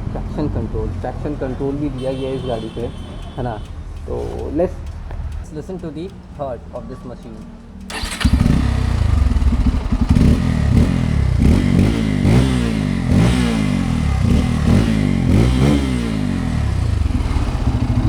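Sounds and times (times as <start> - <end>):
motorcycle engine throttle blips: 1.8 - 18.0.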